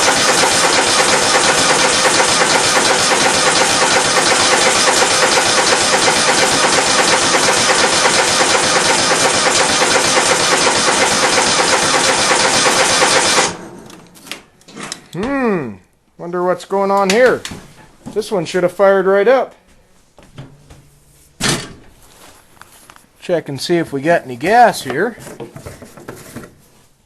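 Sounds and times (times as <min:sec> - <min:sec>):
starter cranking engine: 0:00.0 - 0:13.6.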